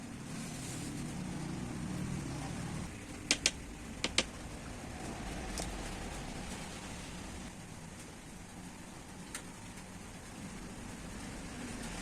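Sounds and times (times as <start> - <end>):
sharp clicks: 3.2 - 4.4.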